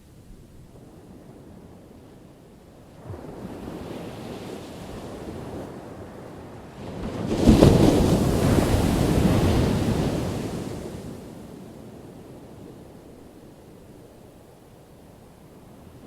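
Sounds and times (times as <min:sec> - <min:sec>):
ocean waves breaking: 0:03.0 - 0:11.6.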